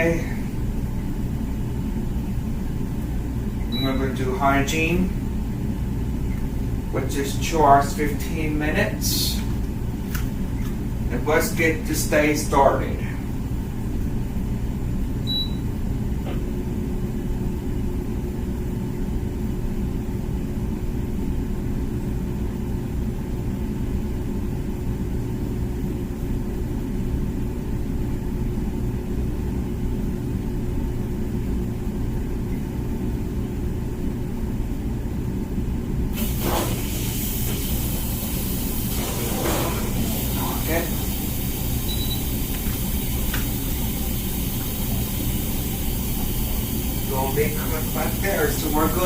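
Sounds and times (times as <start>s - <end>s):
dishwasher motor hum: 0.0s - 49.0s
water spraying hiss: 36.2s - 49.0s.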